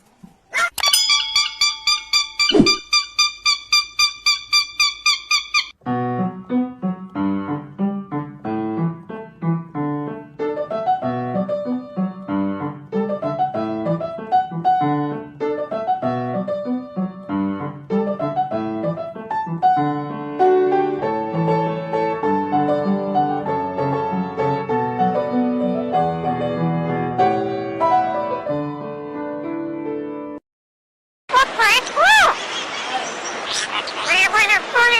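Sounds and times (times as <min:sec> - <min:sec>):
piano music: 0:00.8 - 0:02.9, 0:05.7 - 0:30.4.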